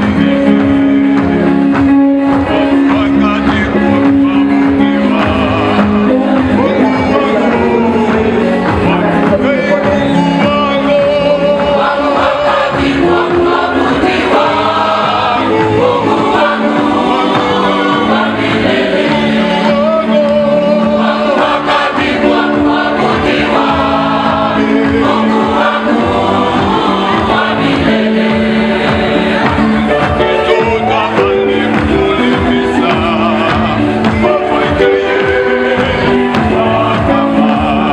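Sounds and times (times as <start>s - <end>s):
choir singing a hymn: 2.4s - 37.9s.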